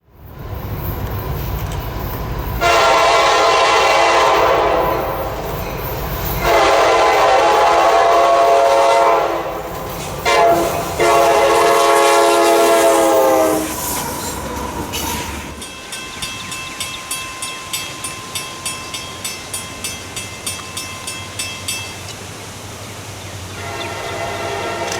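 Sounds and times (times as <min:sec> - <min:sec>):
train low rumble: 0:00.0 - 0:24.9
locomotive air horn blasts: 0:02.6 - 0:05.4, 0:06.4 - 0:13.8, 0:23.6 - 0:24.9.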